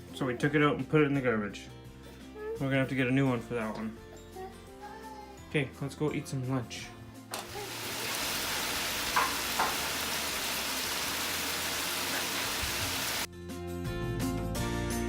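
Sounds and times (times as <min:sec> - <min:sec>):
background music: 0:00.0 - 0:07.4, 0:13.2 - 0:15.0
food sizzling in a frying pan: 0:07.4 - 0:13.3.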